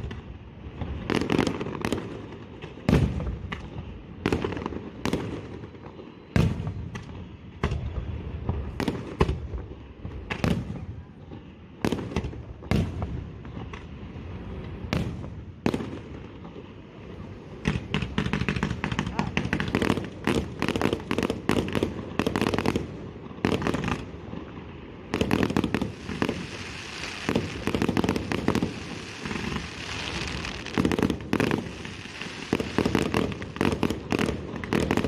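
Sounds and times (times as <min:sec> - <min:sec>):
fireworks bursting: 0:00.0 - 0:35.0.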